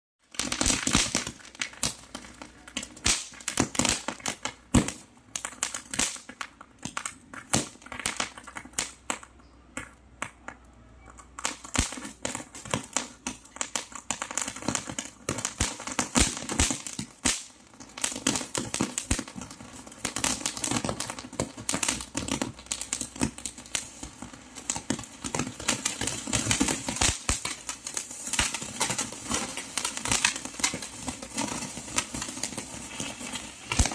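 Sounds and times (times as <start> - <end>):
firecrackers cracking and popping: 0.2 - 33.9.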